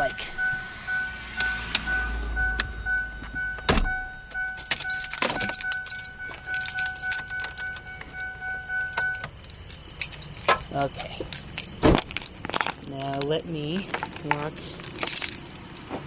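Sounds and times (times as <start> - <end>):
vehicle warning beeps: 0.0 - 11.8
low hum: 0.0 - 12.9.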